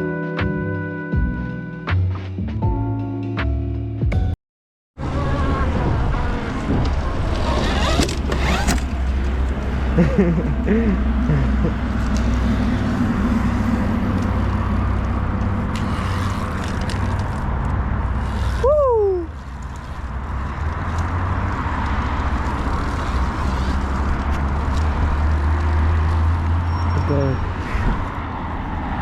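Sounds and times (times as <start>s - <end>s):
road noise: 5.0s - 29.0s
wind on microphone: 27.4s - 29.0s.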